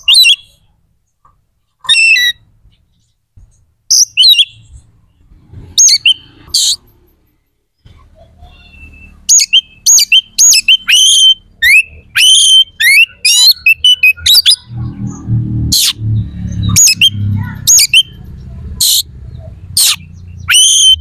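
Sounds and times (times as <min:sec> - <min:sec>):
bird singing whistled notes: 0:00.0 - 0:00.7, 0:03.9 - 0:04.8, 0:05.8 - 0:06.8, 0:08.4 - 0:18.2, 0:18.8 - 0:21.0.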